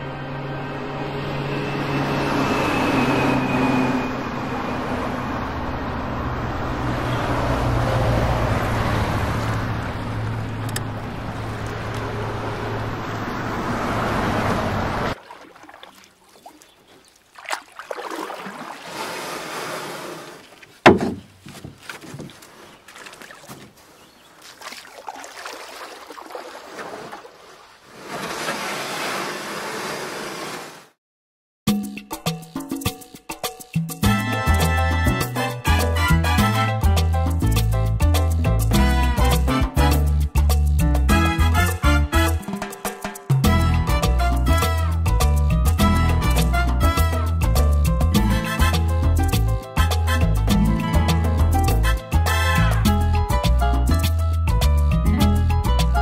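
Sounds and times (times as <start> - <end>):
road traffic: 0.0 - 15.2
sharp knock: 20.8 - 21.3.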